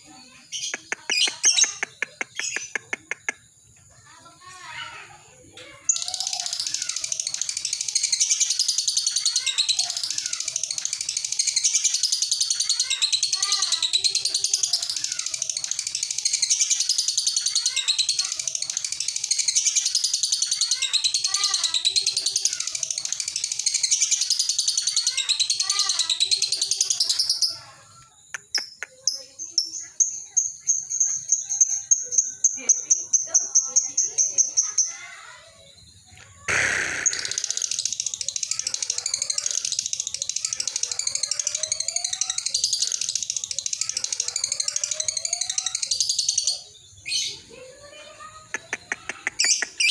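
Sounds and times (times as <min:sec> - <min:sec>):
lovebird chattering chirps: 0:00.1 - 0:03.7, 0:05.9 - 0:27.8, 0:28.4 - 0:49.9
bird sharp clicks: 0:36.2 - 0:38.0
lovebird shrill trill: 0:36.5 - 0:47.4.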